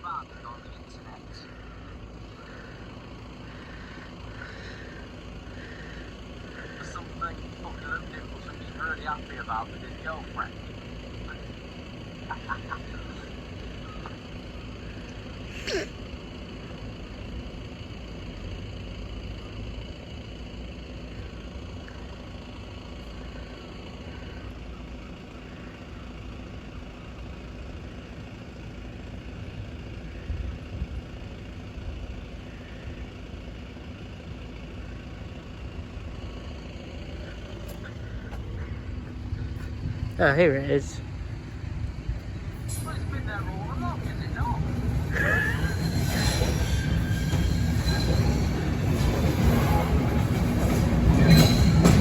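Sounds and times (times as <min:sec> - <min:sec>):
low outdoor rumble: 0:00.0 - 0:52.0
sharp high squeak: 0:45.1 - 0:50.0.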